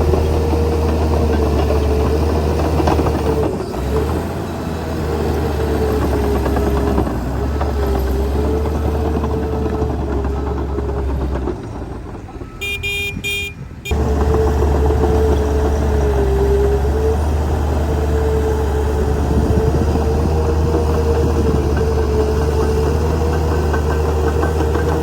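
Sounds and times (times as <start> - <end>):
heavy diesel machine running: 0.0 - 25.0
short high beeps: 12.4 - 13.8.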